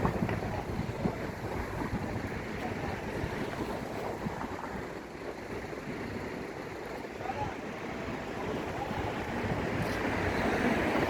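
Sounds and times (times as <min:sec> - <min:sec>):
road traffic rumble: 0:00.0 - 0:11.0
wind buffeting microphone: 0:00.0 - 0:11.0.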